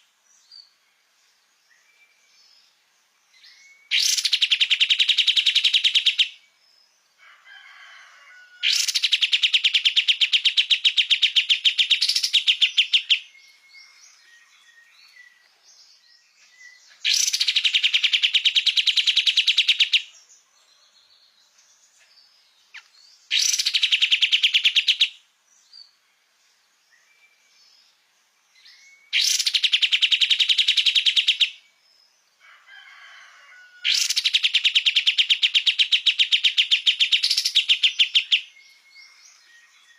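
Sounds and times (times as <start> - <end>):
songbird rapid chattering: 8.7 - 13.3, 17.0 - 20.1, 22.7 - 25.2, 29.2 - 31.6, 33.9 - 38.5
soft bird chirps: 8.7 - 32.2, 34.0 - 39.9.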